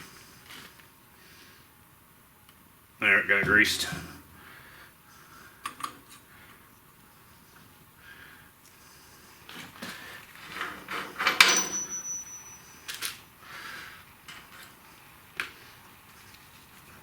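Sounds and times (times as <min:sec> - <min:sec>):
metal tools knocking and clanking: 0:11.0 - 0:12.8
high metallic ring: 0:11.4 - 0:13.0.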